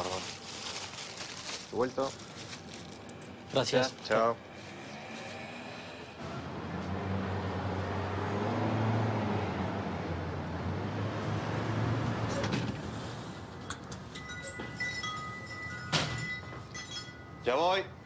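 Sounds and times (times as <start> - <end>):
vehicle passing: 4.1 - 13.3.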